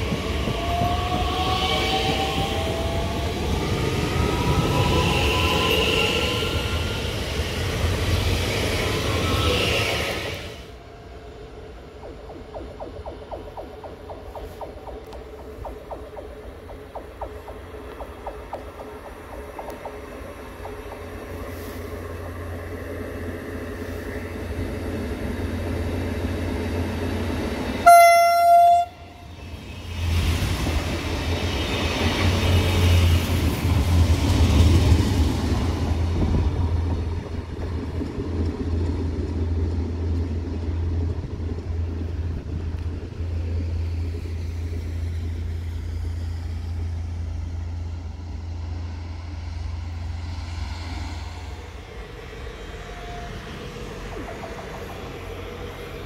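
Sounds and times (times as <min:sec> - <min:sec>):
train rumble passing: 0:00.0 - 0:56.0
low engine hum: 0:11.7 - 0:26.9
train horn blast: 0:27.8 - 0:29.2.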